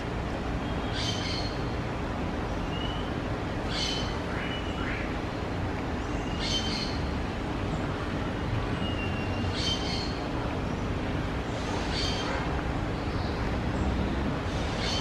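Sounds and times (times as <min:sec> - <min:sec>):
small birds chirping: 0:06.0 - 0:11.0.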